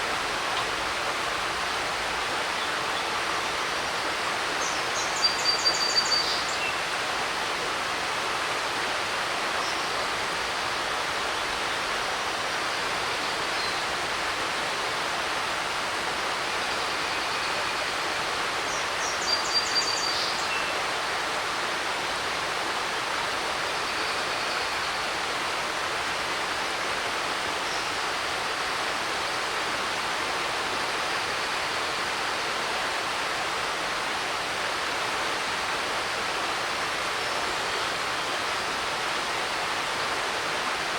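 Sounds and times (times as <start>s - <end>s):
creek water rushing over rocks: 0.0s - 40.9s
songbird singing: 4.6s - 6.9s, 18.7s - 20.8s.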